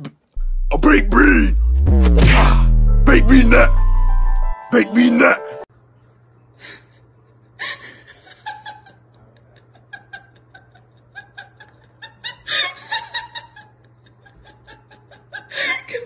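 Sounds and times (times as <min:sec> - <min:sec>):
steady low hum: 0:00.4 - 0:04.6.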